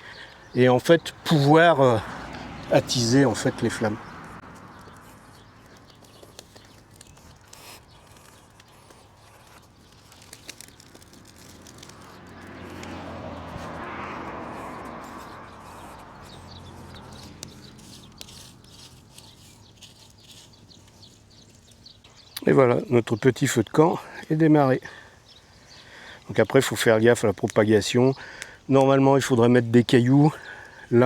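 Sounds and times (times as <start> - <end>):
campfire crackling and popping: 4.6 - 13.9.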